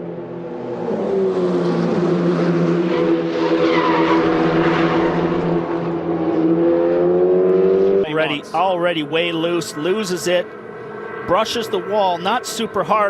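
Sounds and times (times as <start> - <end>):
race car engine at high revs: 0.0 - 8.6.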